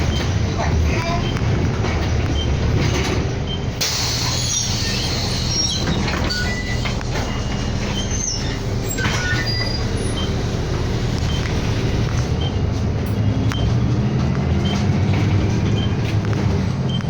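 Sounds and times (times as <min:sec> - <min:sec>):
bus engine and road drone: 0:00.0 - 0:17.0
high squeaks and rattles: 0:03.8 - 0:12.6.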